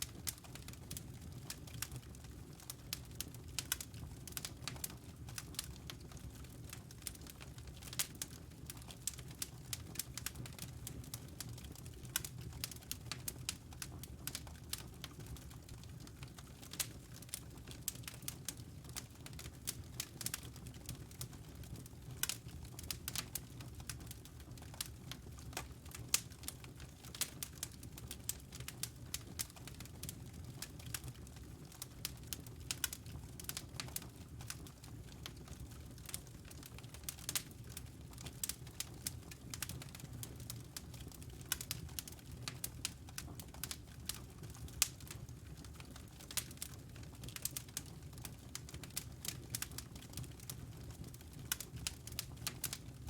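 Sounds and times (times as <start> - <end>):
fire crackling in fireplace: 0.0 - 53.0.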